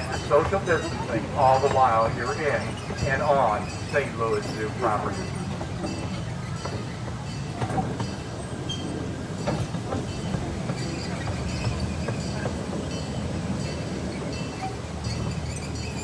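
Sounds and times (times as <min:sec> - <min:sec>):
faint high wheel squeal: 0:00.0 - 0:16.0
train wheels rumbling on rail: 0:00.0 - 0:16.0.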